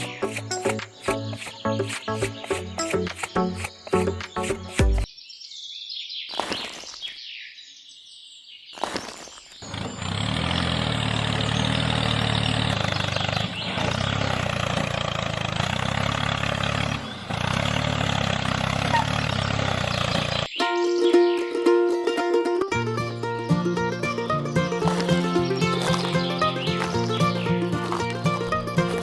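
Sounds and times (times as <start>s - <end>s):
sweeping noises: 0.0s - 5.1s.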